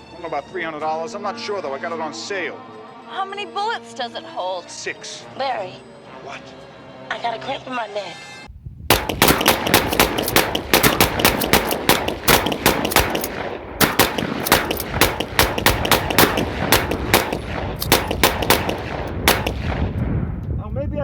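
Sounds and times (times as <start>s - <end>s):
rapid gunfire: 8.9s - 20.0s.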